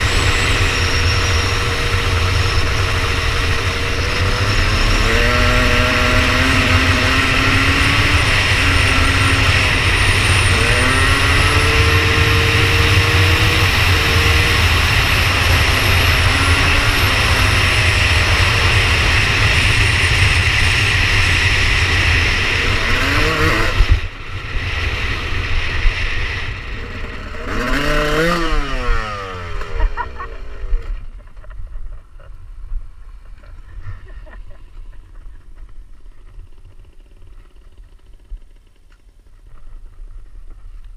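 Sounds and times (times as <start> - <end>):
dirt bike engine revving: 0.0 - 31.2.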